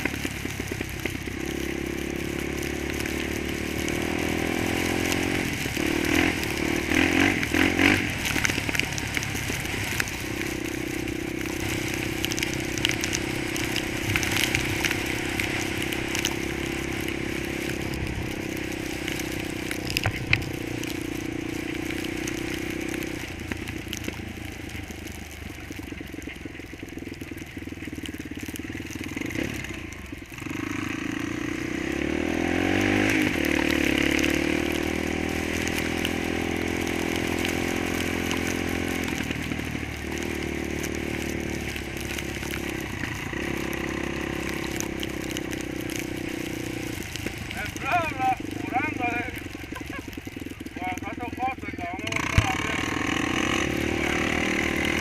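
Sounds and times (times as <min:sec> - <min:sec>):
quad engine revving: 0:00.0 - 0:25.1, 0:26.9 - 0:55.0
crackling crunching noise: 0:00.0 - 0:55.0.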